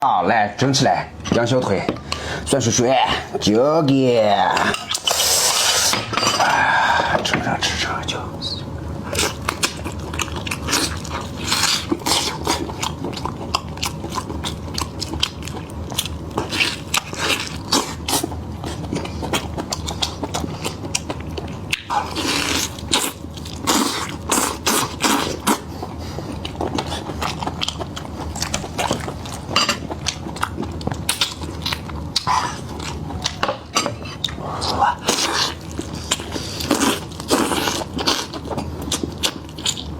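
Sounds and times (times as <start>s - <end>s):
person chewing meat: 8.9s - 39.9s.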